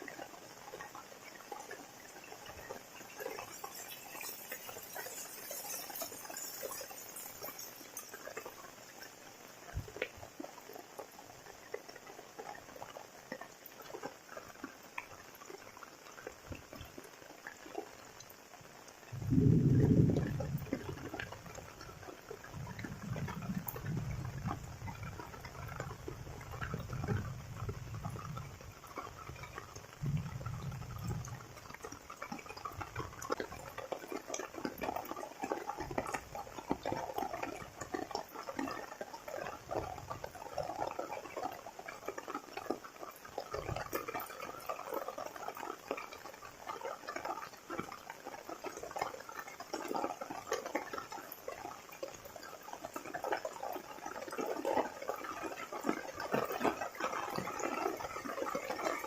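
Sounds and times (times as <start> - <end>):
heavy rain falling: 18.0 - 35.0.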